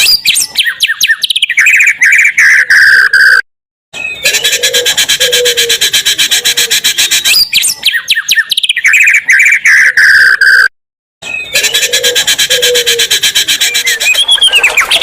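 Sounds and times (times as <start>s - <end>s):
recorded songbird song: 0.0s - 3.4s, 4.0s - 15.0s.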